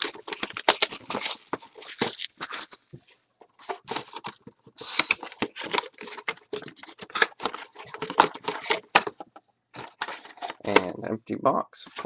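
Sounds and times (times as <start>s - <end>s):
cardboard packaging being torn: 0.0s - 3.0s, 3.6s - 9.0s.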